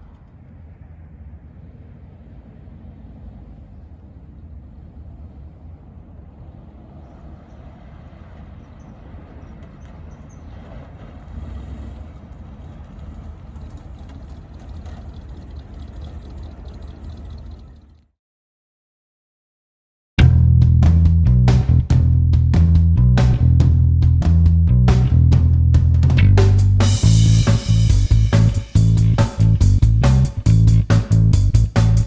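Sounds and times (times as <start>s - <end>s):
car engine rumbling: 0.0s - 18.0s, 20.2s - 32.0s.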